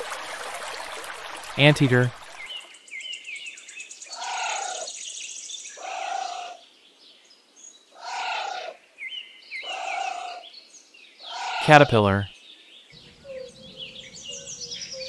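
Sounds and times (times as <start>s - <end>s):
anteater calling: 13.0s - 15.0s
birds chirping: 13.0s - 15.0s.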